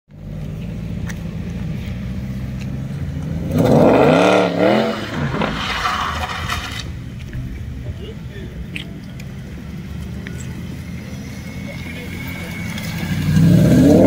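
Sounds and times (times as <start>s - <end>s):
sports car engine revving: 0.2s - 6.9s, 9.8s - 14.0s.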